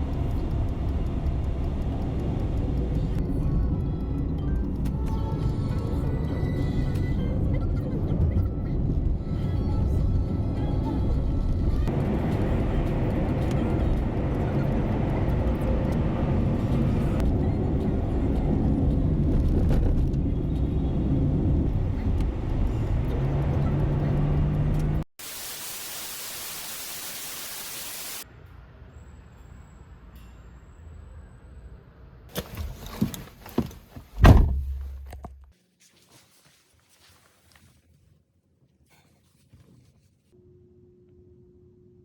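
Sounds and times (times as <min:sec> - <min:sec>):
car cabin engine and road rumble: 0:00.0 - 0:25.1, 0:32.3 - 0:35.5.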